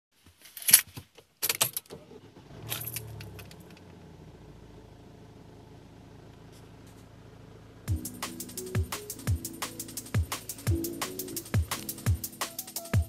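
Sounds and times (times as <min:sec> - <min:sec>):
diesel engine starting and idling: 0:01.9 - 0:09.1.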